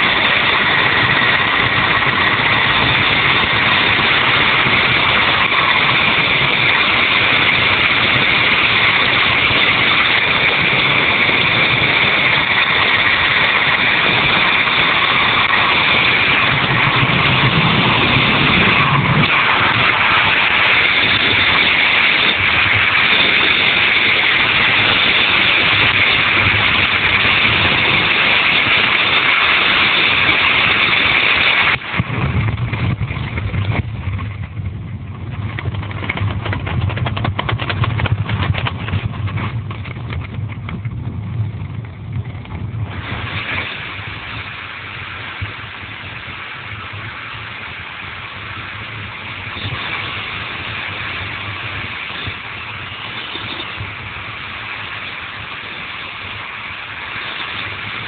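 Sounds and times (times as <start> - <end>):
helicopter engine and rotor din: 0.0 - 40.8, 48.2 - 57.9.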